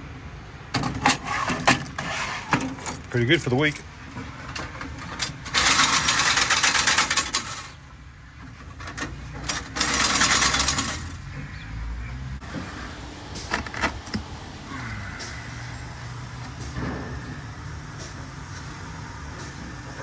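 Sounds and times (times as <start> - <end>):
rapid mechanical clattering: 0.7 - 11.3.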